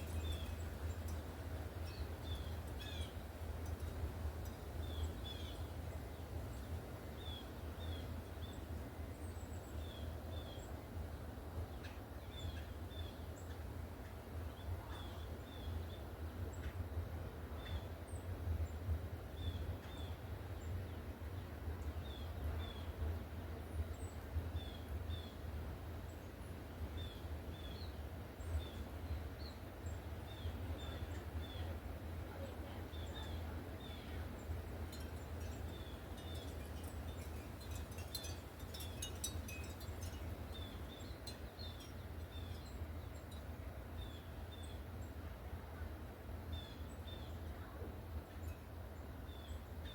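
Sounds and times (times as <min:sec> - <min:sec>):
songbirds chip notes: 0:00.0 - 0:10.9, 0:32.8 - 0:45.2.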